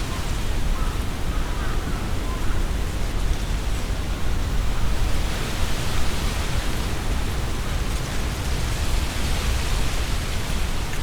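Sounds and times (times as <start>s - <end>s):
leaves rustling in wind: 0.0s - 11.0s.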